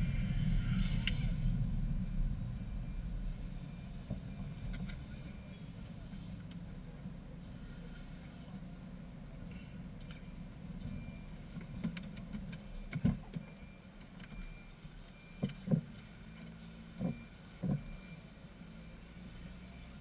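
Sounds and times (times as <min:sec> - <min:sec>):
car engine idling: 0:00.0 - 0:14.3.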